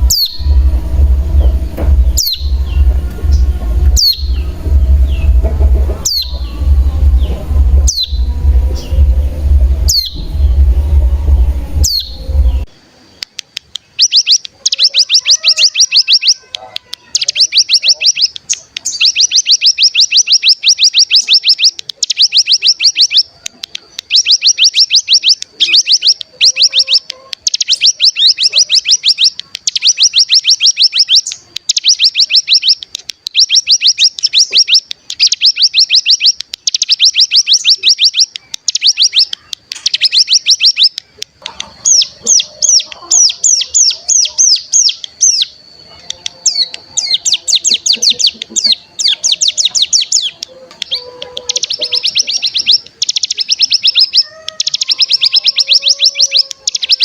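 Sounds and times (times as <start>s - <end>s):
bird singing buzzing trill: 0.0s - 12.7s, 24.1s - 57.0s.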